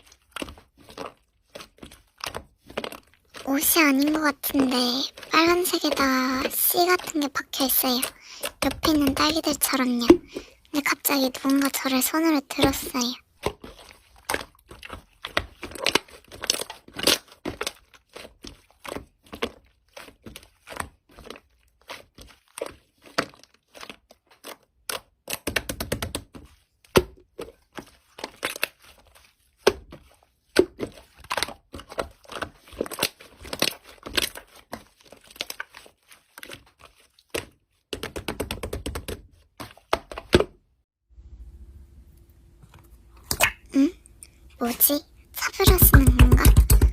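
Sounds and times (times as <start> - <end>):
slime popping and crackling: 12.6 - 38.2.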